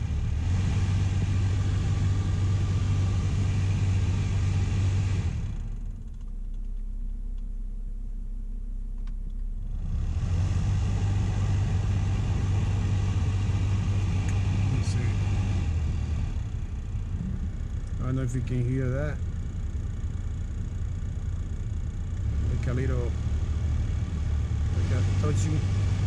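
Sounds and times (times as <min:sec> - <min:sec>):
car blower fan rushing air: 0:00.0 - 0:06.0, 0:09.2 - 0:26.0
low rumble: 0:00.0 - 0:26.0.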